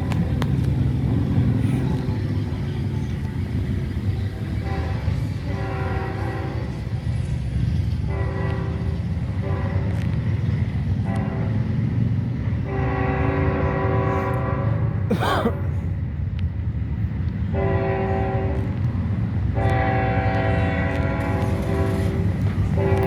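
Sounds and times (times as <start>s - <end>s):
freight train rumbling: 0.0s - 23.0s
locomotive air horn blasts: 4.6s - 6.7s, 8.1s - 10.1s, 11.0s - 11.7s, 12.6s - 15.1s, 17.5s - 18.8s, 19.5s - 23.0s.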